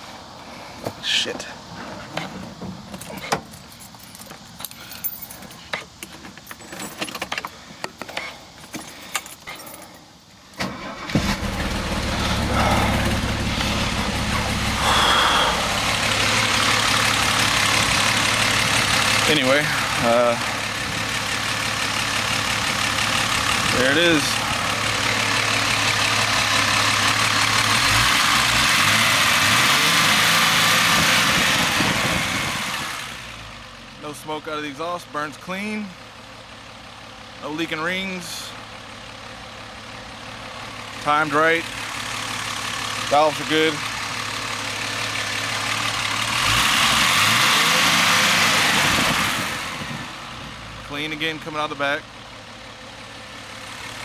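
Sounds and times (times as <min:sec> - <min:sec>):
keys jangling: 0:02.9 - 0:10.1
car engine idling: 0:07.3 - 0:54.0.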